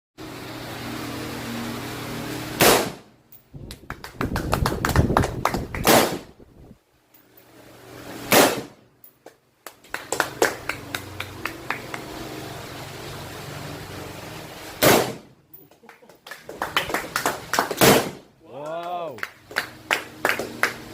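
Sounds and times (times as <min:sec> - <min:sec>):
loud gunshots: 0:02.6 - 0:03.1, 0:05.8 - 0:06.3, 0:08.3 - 0:08.8, 0:14.8 - 0:15.3, 0:17.8 - 0:18.3.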